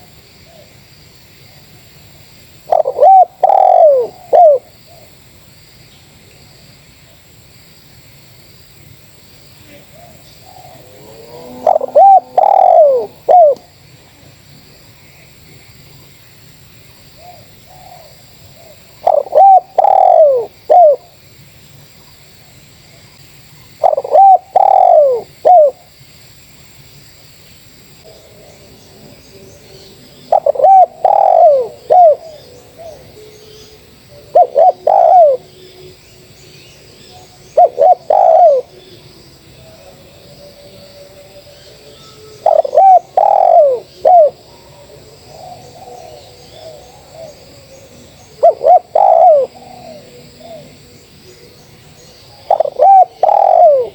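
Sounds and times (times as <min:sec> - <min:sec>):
dove cooing: 0:02.6 - 0:05.1, 0:09.7 - 0:13.7, 0:17.2 - 0:21.2, 0:23.8 - 0:25.9, 0:29.6 - 0:36.0, 0:37.0 - 0:39.0, 0:39.6 - 0:53.9
faint dove cooing: 0:02.6 - 0:05.1, 0:09.6 - 0:14.4, 0:17.2 - 0:21.2, 0:23.8 - 0:25.9, 0:28.0 - 0:36.0, 0:37.0 - 0:53.9.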